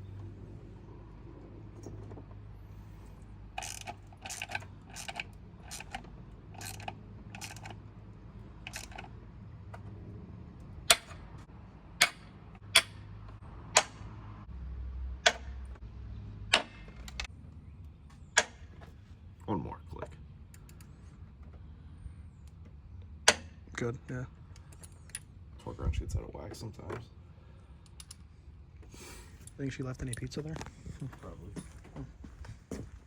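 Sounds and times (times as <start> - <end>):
torque wrench ratcheting: 3.6 - 7.8, 8.6 - 9.1
torque wrench sharp clicks: 6.6 - 7.8, 8.7 - 9.1.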